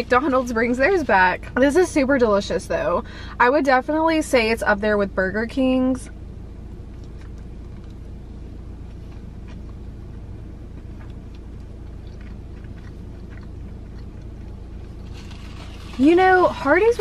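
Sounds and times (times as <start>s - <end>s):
low hum inside car: 0.0s - 17.0s
person chewing food: 6.9s - 16.0s.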